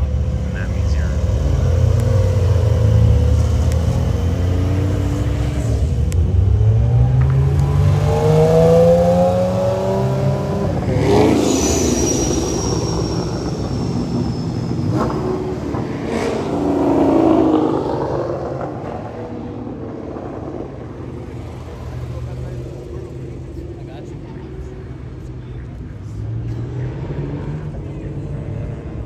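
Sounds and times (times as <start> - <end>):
car engines accelerating: 0.0 - 29.0
cars passing: 0.0 - 29.0.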